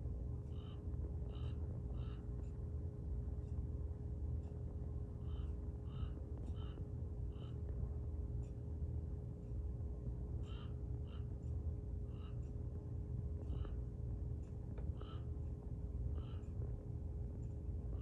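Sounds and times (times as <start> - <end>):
low background rumble: 0.0 - 18.0
bird calls: 0.5 - 2.3, 5.2 - 7.6, 10.4 - 11.3, 12.1 - 12.5, 13.4 - 13.8, 14.8 - 15.3, 16.1 - 16.6.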